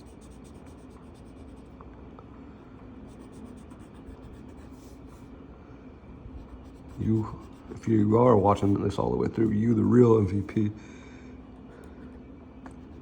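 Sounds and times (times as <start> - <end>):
marker rubbing on paper: 0.0 - 1.7, 3.1 - 5.3, 6.4 - 9.0.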